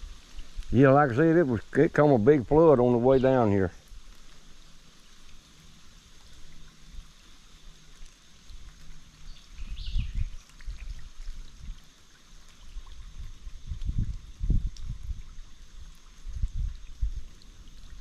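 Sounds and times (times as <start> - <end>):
creek water running: 0.0 - 18.0
low rumbles on microphone: 12.7 - 18.0.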